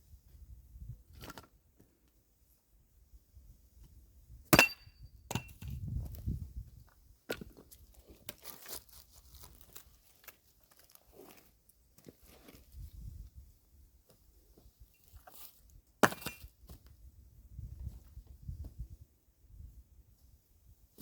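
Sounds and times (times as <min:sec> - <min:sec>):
axe striking firewood: 0:04.5 - 0:05.7, 0:16.0 - 0:16.5.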